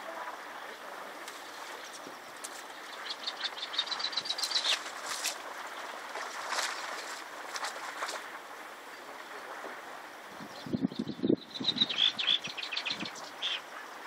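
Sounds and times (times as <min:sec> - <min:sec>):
bird chirping: 0:02.7 - 0:04.9, 0:10.5 - 0:13.8.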